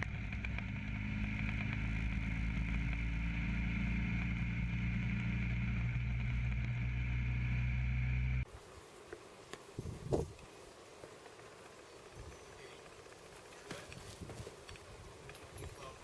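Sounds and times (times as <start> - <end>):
motorcycle engine running: 0.0 - 8.5
road and wind noise: 0.0 - 8.6, 9.6 - 10.4, 11.3 - 16.0.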